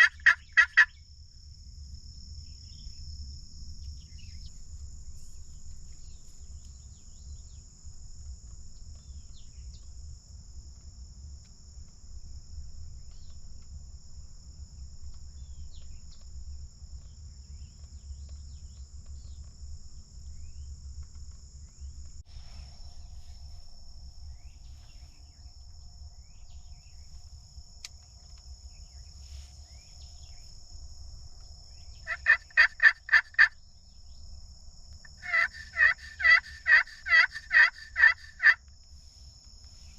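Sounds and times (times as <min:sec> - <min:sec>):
turkey yelping: 0:00.0 - 0:00.9, 0:32.1 - 0:33.5, 0:35.2 - 0:38.6
insects droning: 0:00.0 - 0:39.9.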